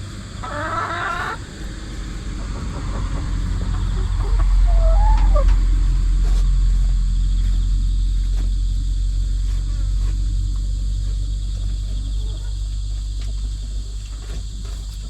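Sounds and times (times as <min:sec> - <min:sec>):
loud low rumble: 0:00.0 - 0:14.0
chicken call: 0:00.3 - 0:01.6, 0:02.8 - 0:06.5.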